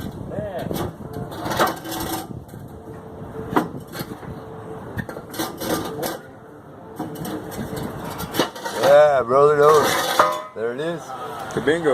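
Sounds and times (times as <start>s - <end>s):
metal exhaust pipe clanking: 7.0s - 10.7s.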